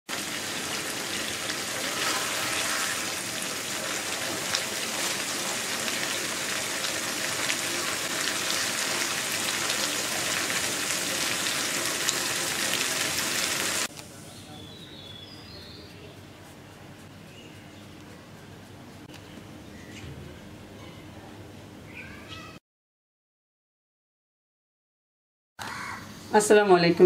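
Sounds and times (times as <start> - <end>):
gravy sizzling in oil: 0.1 - 13.9.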